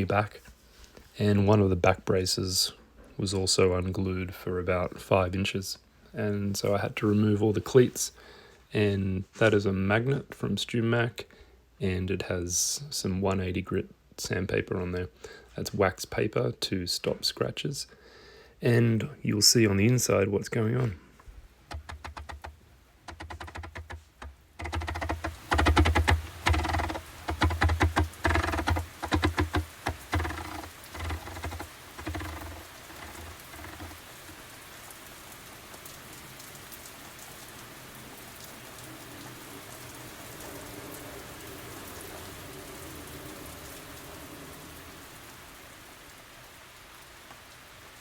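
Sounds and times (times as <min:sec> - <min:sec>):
faint steady hiss: 0:00.0 - 0:48.0
sandpaper rasping on wood: 0:24.6 - 0:33.9.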